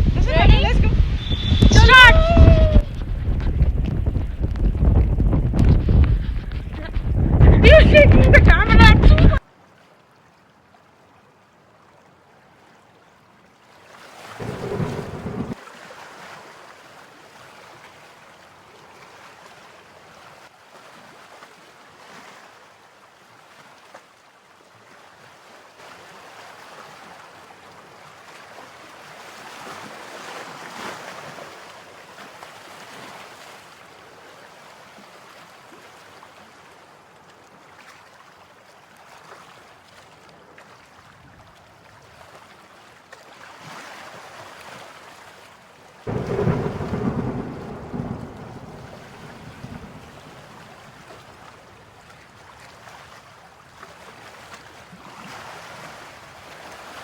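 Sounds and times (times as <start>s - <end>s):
rain: 0.0s - 9.6s, 13.8s - 21.4s, 25.8s - 40.5s, 44.3s - 57.0s
wind: 0.0s - 57.0s.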